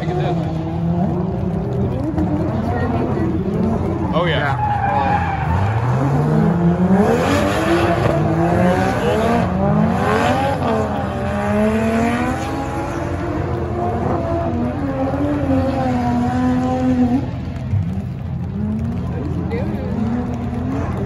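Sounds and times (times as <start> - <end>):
car engine revving hard: 4.9 - 17.3.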